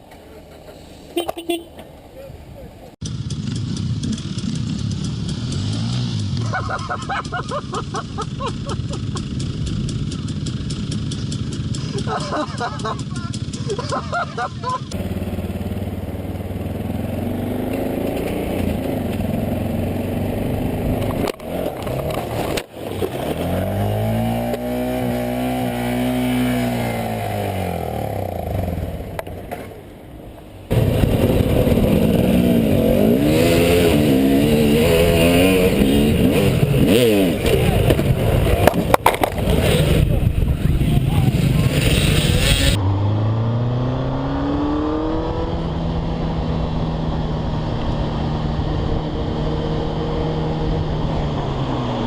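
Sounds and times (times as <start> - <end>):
motorcycle engine revving: 3.0 - 29.5, 30.7 - 52.0
rushing noise: 30.6 - 43.4.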